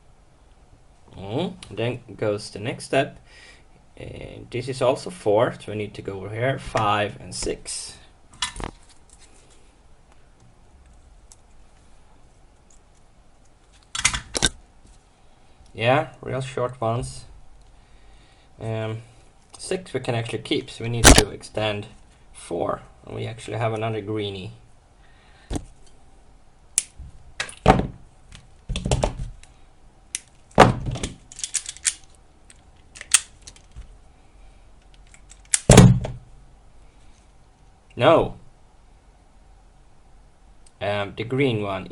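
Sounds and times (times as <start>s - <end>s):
hands handling wires: 8.4s - 15.0s, 26.8s - 34.0s, 34.8s - 35.8s.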